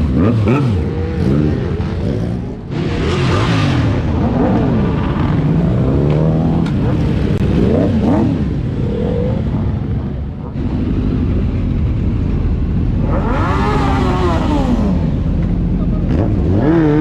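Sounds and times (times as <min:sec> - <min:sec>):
motorcycle engines revving: 0:00.0 - 0:17.0
low engine rumble: 0:03.9 - 0:16.6.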